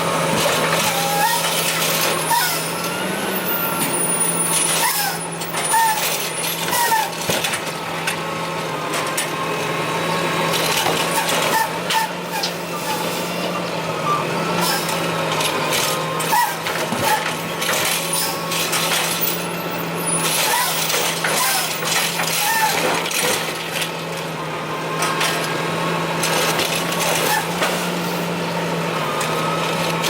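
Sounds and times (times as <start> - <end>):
garbage truck engine humming: 0.0 - 30.0.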